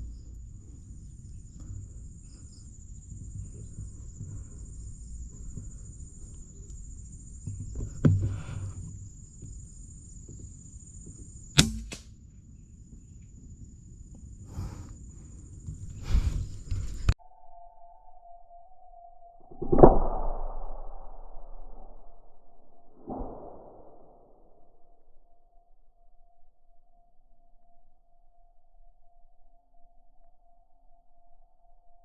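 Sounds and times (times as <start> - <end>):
low outdoor rumble: 0.0 - 17.2
insects trilling: 0.0 - 18.8
thump: 7.5 - 8.8
sharp crack: 11.6 - 12.1.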